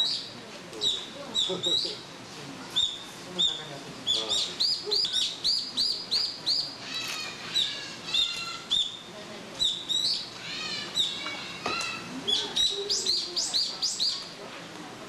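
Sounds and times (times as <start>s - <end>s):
small birds chirping: 0.0s - 2.1s, 2.7s - 14.4s.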